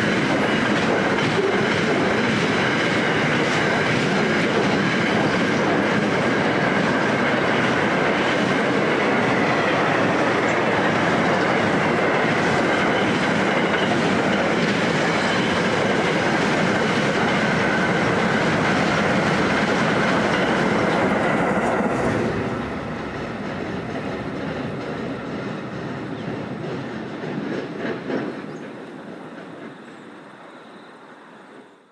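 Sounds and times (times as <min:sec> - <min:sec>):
train wheels rumbling on track: 0:00.0 - 0:31.9
faint high squeal: 0:29.8 - 0:31.8.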